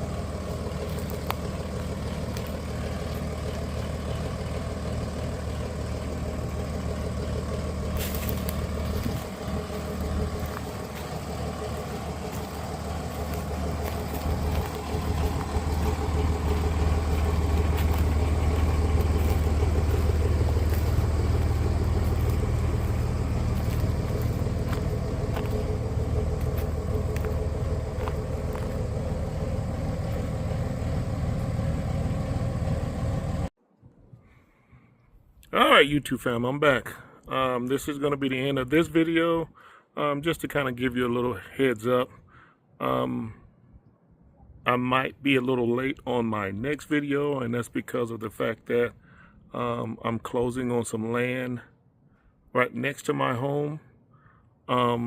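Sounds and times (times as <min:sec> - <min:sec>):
engine running with low hum: 0:00.0 - 0:35.1, 0:45.4 - 0:51.3.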